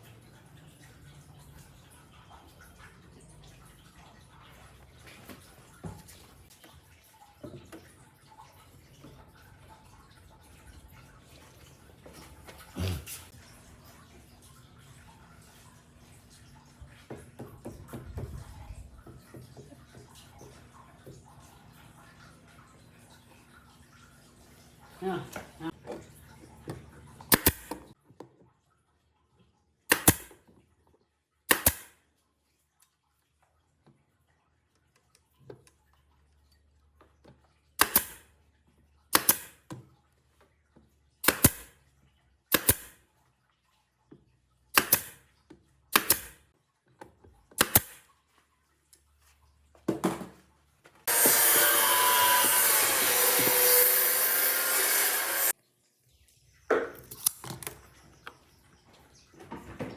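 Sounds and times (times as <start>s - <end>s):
sharp woodworking strikes: 27.3s - 27.8s, 29.9s - 30.3s, 31.5s - 31.9s, 37.8s - 38.2s, 39.1s - 39.6s, 41.2s - 41.7s, 42.5s - 42.9s, 44.8s - 45.2s, 46.0s - 46.4s, 47.6s - 48.0s, 51.1s - 55.5s
power tool running: 51.1s - 55.5s.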